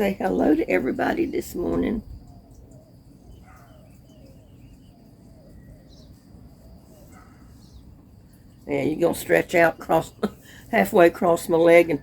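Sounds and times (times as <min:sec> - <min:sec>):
low outdoor rumble: 0:00.0 - 0:12.0
bird calls: 0:00.7 - 0:10.6.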